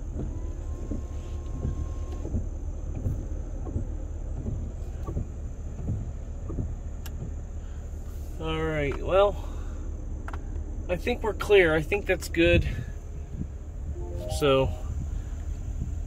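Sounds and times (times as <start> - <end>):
windshield wipers sweeping: 0.0 - 8.4.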